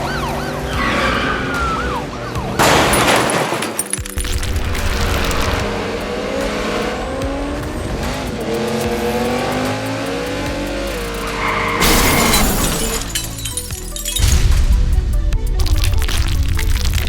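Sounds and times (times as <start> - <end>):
tire squeal: 0.0 - 2.8, 10.9 - 13.0
race car engines revving: 0.0 - 3.8, 4.4 - 12.9.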